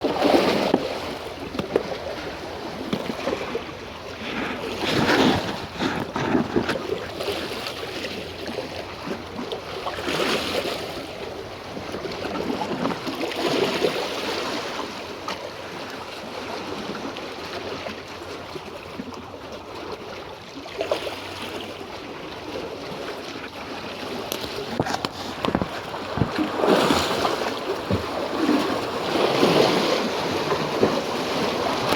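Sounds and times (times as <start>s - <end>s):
sea waves washing: 0.0s - 15.0s, 23.2s - 31.9s
wind buffeting microphone: 24.6s - 31.9s.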